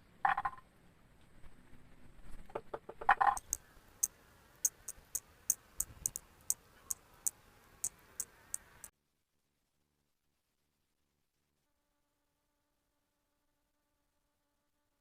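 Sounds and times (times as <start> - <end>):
sharp irregular clicks: 3.3 - 8.9.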